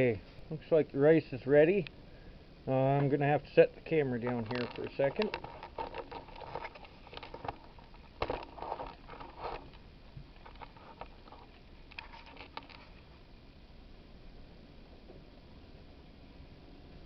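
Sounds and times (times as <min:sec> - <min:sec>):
handling knocks and scrapes: 0:04.2 - 0:13.0.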